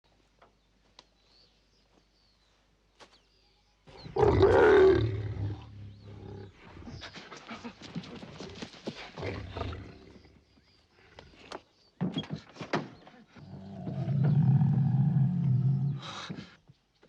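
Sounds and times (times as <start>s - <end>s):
big cat roaring: 4.0s - 6.6s, 13.5s - 16.1s.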